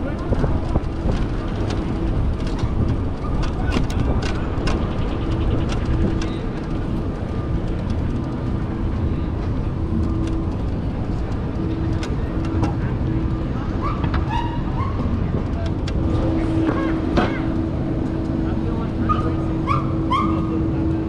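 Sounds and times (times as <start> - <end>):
vehicle rumble: 0.0 - 21.0.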